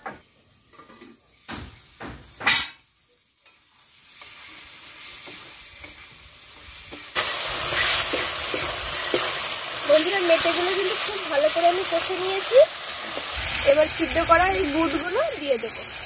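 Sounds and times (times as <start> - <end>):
liver sizzling in oil: 2.8 - 16.0
spatula stirring in wok: 3.4 - 12.3.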